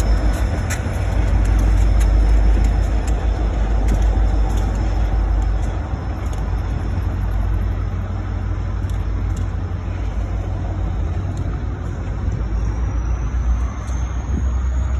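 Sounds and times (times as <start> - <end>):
thin high whine: 0.0 - 14.9
train rumbling: 0.0 - 14.9.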